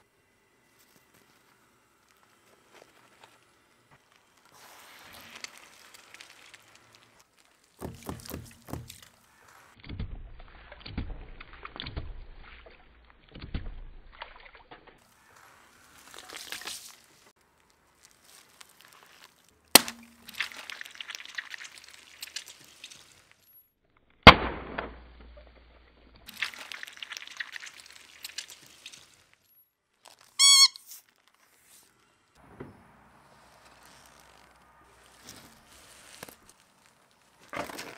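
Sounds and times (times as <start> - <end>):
objects crackling under car tyres: 0.6 - 24.3, 25.0 - 37.9
short squeaky tone: 30.3 - 31.0.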